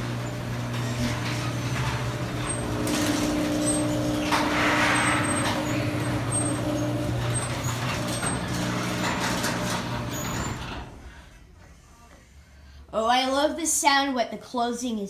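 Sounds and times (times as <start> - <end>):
garage door opener motor humming: 0.0 - 11.7.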